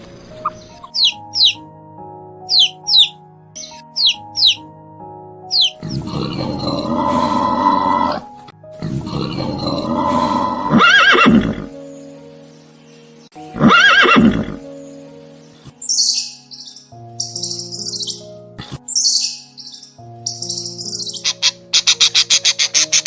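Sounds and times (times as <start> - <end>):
background music: 0.0 - 23.0
horse neighing: 8.9 - 11.7, 13.6 - 14.6.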